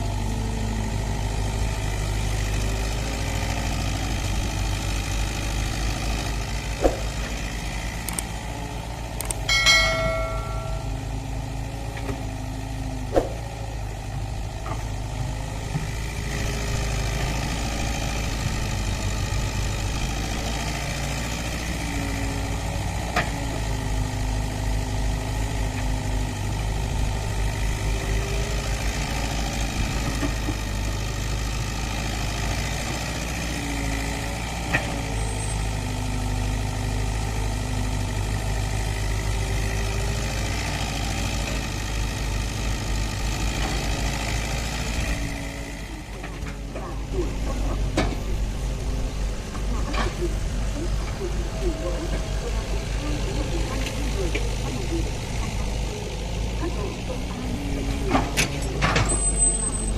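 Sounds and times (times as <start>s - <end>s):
excavator diesel engines: 0.0s - 59.9s
sharp metal clanks: 9.4s - 11.1s.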